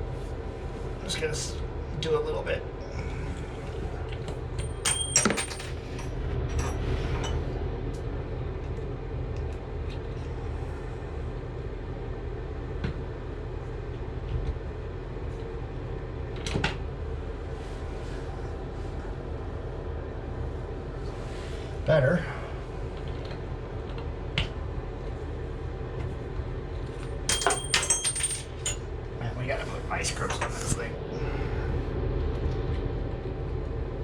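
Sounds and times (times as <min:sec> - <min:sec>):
steady low hum: 0:00.0 - 0:34.0
sharp metal clinks: 0:04.7 - 0:05.7, 0:27.3 - 0:28.8.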